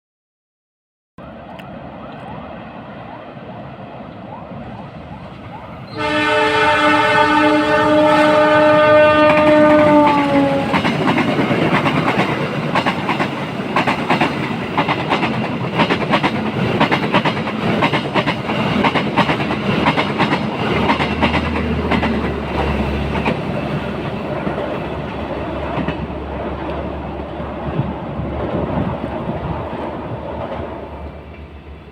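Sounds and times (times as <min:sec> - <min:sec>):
locomotive horn: 0:05.9 - 0:11.0
train wheels clacking over rail joints: 0:08.3 - 0:26.8.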